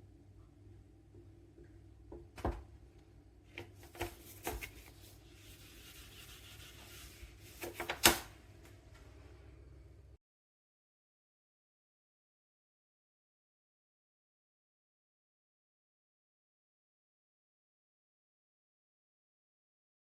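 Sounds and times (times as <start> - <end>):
soft scraping hiss: 3.9 - 8.0.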